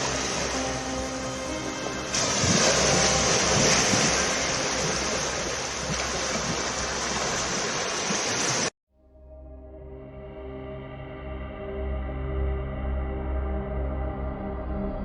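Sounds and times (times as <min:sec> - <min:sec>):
sea waves surging on a beach: 0:00.0 - 0:08.7.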